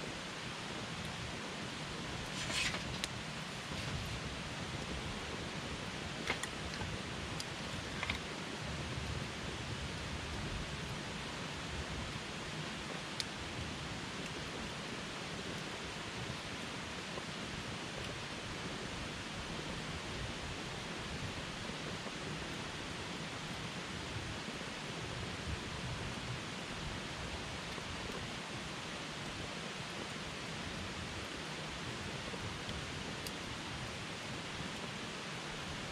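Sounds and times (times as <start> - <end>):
campfire flame hiss and rumble: 0.0 - 35.9
wood crackling and popping: 1.0 - 9.1.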